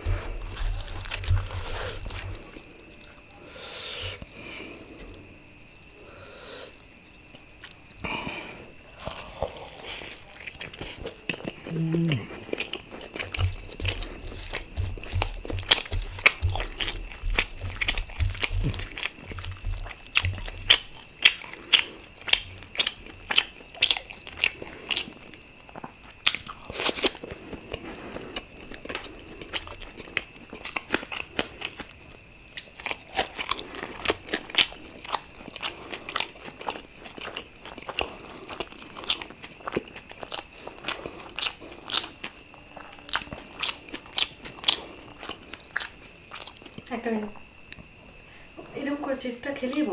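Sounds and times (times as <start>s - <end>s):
person chewing crunchy food: 0.0s - 46.9s
low thumps: 13.3s - 20.8s.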